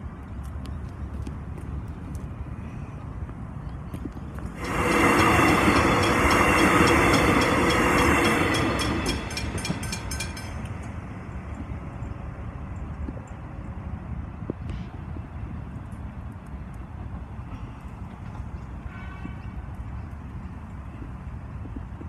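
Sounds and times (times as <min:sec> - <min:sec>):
train wheels rattling and clicking: 0:04.3 - 0:11.8.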